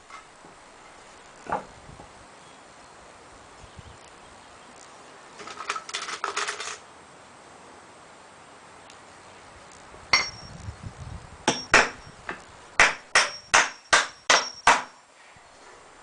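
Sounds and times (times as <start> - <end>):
hammer striking nails into wood: 11.5 - 15.0.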